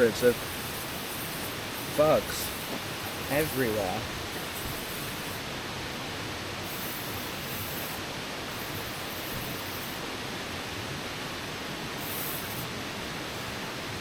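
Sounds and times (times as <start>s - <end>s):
high insect chorus: 0.0s - 5.5s, 6.6s - 10.1s, 11.9s - 13.8s.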